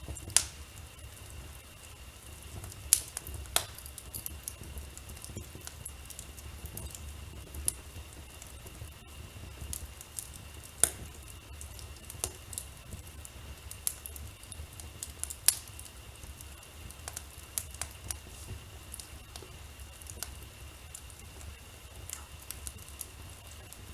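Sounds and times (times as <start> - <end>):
loud fire pops: 0.0 - 23.9
wood fire crackling: 0.0 - 23.9.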